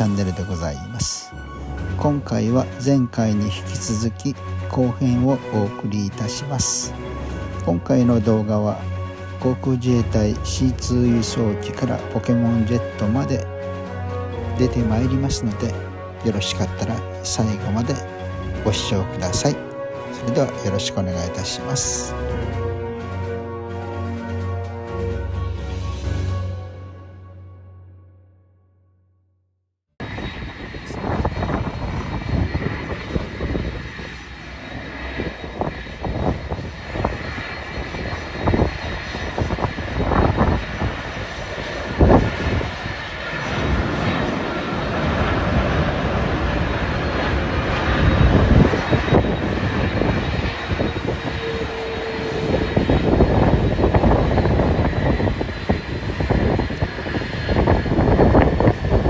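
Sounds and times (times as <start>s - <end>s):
jet engines roaring: 0.0s - 26.9s, 30.0s - 59.0s
wind buffeting microphone: 30.0s - 59.0s.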